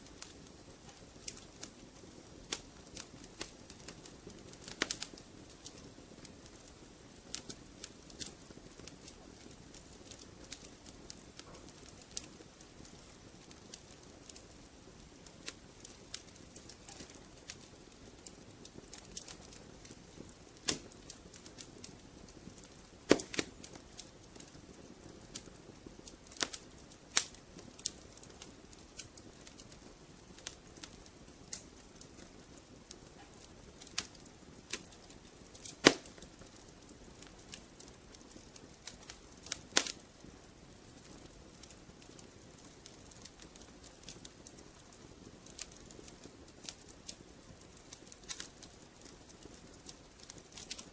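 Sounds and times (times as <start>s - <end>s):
fire crackling and popping: 0.0s - 50.9s
soft hiss: 0.0s - 50.9s.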